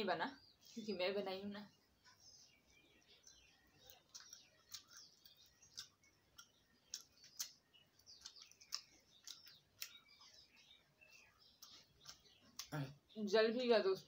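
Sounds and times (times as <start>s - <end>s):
birds chirping: 0.0s - 14.0s
person chewing: 3.5s - 13.0s.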